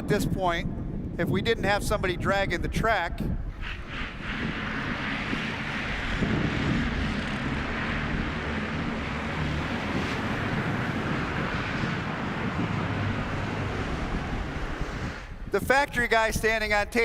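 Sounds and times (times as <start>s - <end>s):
road noise: 3.5s - 15.6s
vehicle engine rumble: 3.5s - 15.6s.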